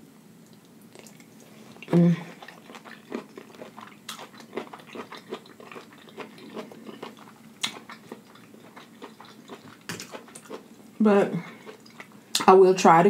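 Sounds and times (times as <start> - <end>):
wet mouth clicks and smacks: 0.5 - 1.9
person chewing food: 0.5 - 12.4.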